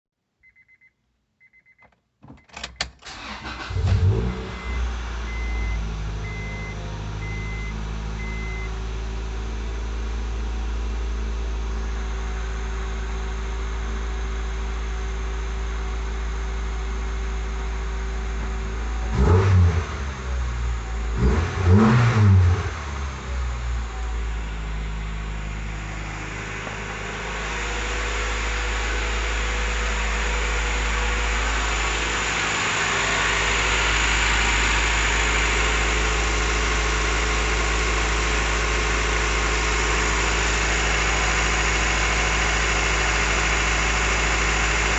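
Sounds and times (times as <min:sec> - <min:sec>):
car engine starting and idling: 0:02.2 - 0:44.9
short electronic beeps: 0:04.6 - 0:08.7.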